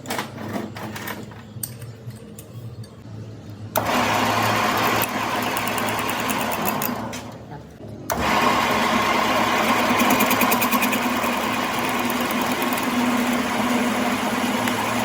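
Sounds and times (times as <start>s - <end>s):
motorised workshop tool running: 3.8s - 7.1s, 8.1s - 15.0s.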